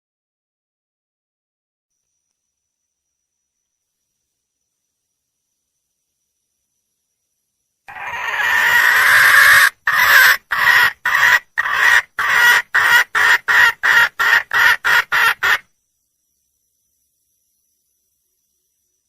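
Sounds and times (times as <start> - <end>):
hen calling and clucking: 7.9 - 15.6.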